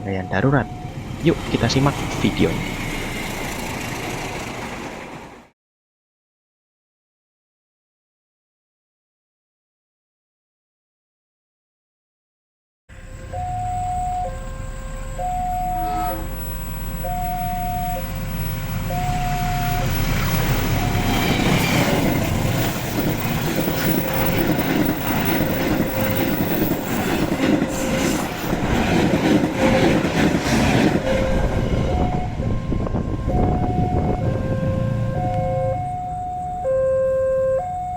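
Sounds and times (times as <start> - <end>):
level crossing alarm two-note tone: 0.1 - 1.0, 13.0 - 21.4, 31.0 - 37.9
train wheels clattering over rails: 19.9 - 32.1.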